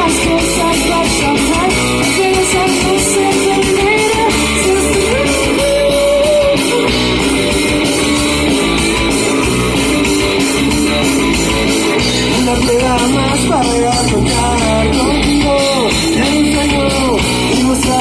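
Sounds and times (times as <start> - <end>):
bass and drums: 0.0 - 18.0
electric guitar lines: 0.0 - 18.0.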